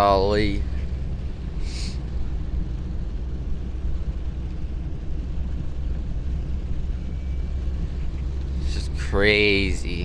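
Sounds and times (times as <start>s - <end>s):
truck engine and road rumble: 0.0s - 10.0s
rain hiss: 1.6s - 2.1s.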